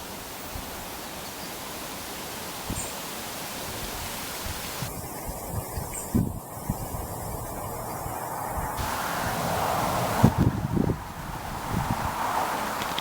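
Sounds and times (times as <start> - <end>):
wind: 0.0 - 13.0
wind buffeting microphone: 3.7 - 13.0.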